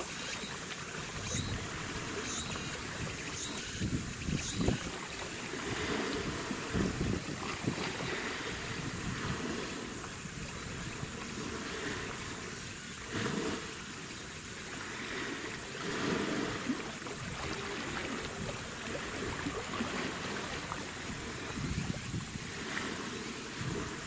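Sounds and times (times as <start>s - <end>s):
steady outdoor hiss: 0.0s - 24.0s
wind buffeting microphone: 1.1s - 12.2s, 17.2s - 24.0s.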